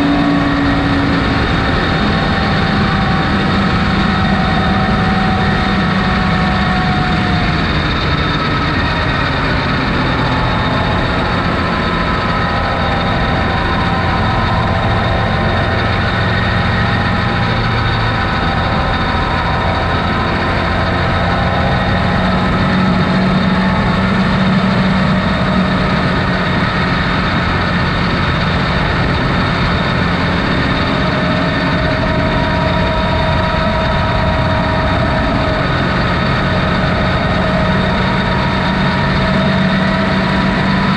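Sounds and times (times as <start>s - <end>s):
off-road vehicle engine running: 0.0s - 40.9s.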